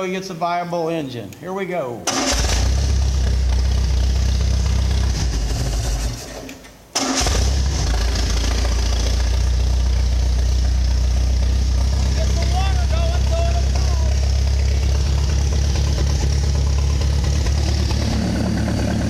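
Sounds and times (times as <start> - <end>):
boat engine running: 8.1 - 19.0.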